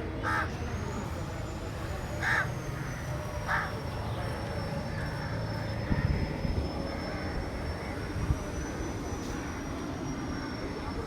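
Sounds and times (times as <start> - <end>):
crow cawing: 0.2 - 0.5, 2.2 - 2.5, 3.5 - 3.7.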